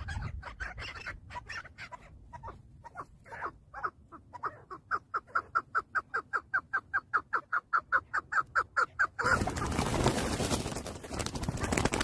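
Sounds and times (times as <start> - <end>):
partridge clucking calls: 0.0 - 9.8.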